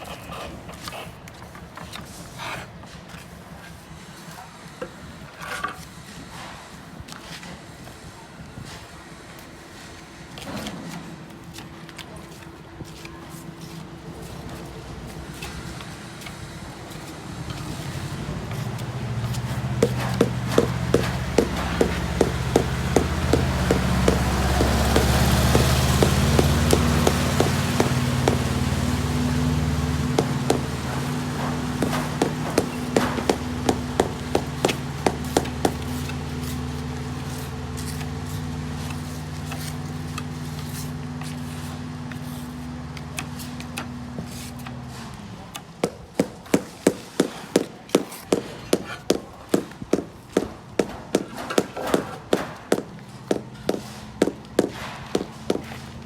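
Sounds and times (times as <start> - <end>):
engine running: 14.8 - 45.2, 49.5 - 56.0
hammer blows: 18.5 - 38.1, 45.8 - 56.0.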